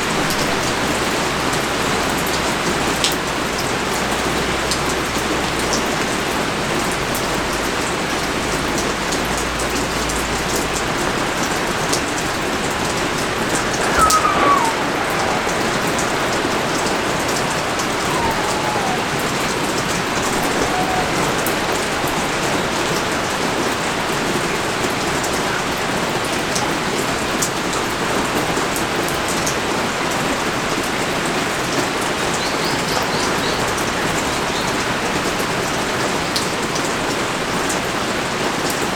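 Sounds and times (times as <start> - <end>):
pouring rain: 0.0 - 38.9
raindrops pattering on surface: 0.0 - 38.9
faint falling whistle-like call: 13.0 - 23.4.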